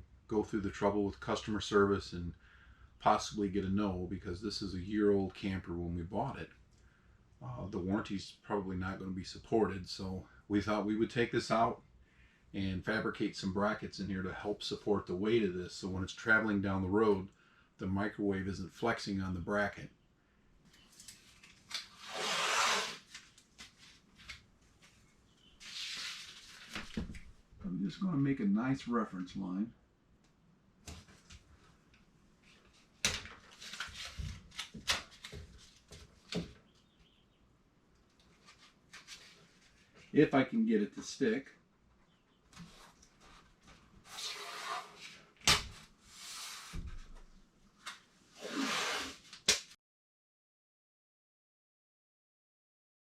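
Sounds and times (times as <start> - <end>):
rubbing noise: 22.0 - 23.1, 48.4 - 49.3.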